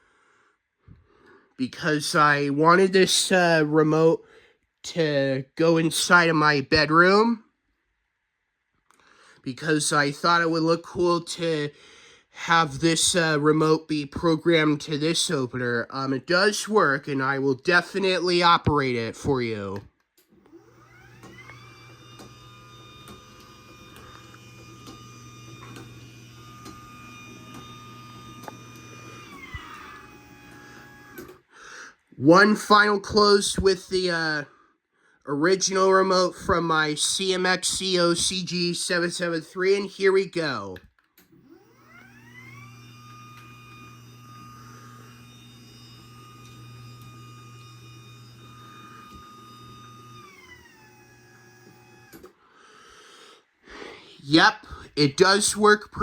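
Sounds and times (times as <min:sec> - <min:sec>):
garage door opener motor humming: 0:20.3 - 0:31.5, 0:41.2 - 0:52.4.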